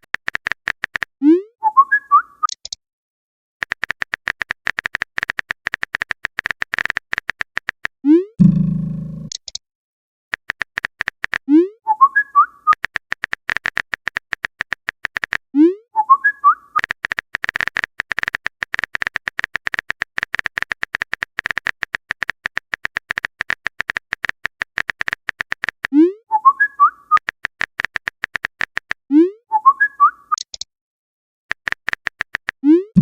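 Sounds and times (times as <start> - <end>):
phone keyboard clicking: 0.0 - 1.2, 3.6 - 8.0, 10.3 - 11.4, 12.7 - 15.5, 16.8 - 25.9, 27.2 - 29.0, 31.5 - 32.6.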